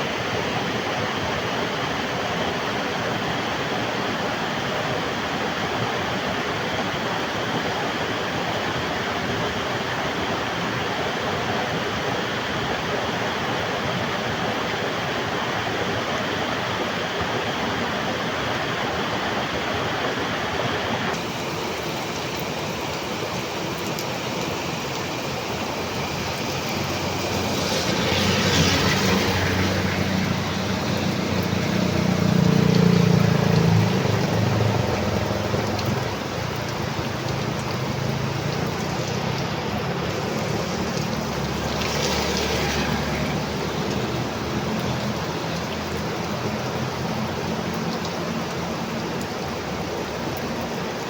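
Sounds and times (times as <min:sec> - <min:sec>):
heavy rain hissing: 0:18.0 - 0:51.0.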